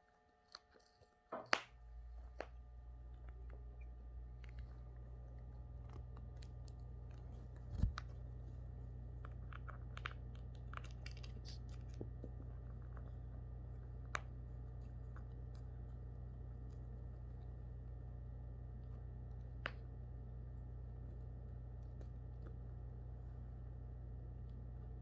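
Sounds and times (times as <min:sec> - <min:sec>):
steady low hum: 0:00.0 - 0:25.0
cockatoo chewing with beak: 0:00.4 - 0:17.8.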